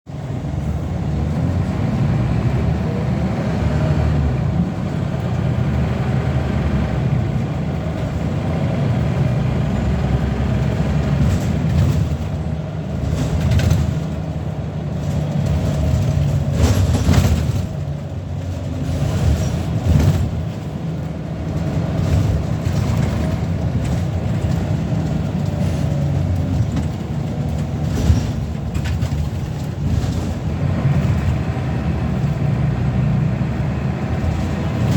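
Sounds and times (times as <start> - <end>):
bus diesel engine running: 0.1 - 34.9
knocks and rattles: 10.6 - 31.4.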